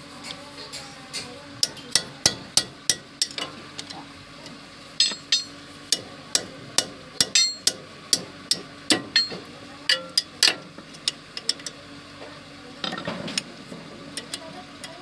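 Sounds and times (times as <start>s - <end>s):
hammer striking metal: 1.6s - 3.9s, 5.0s - 10.6s.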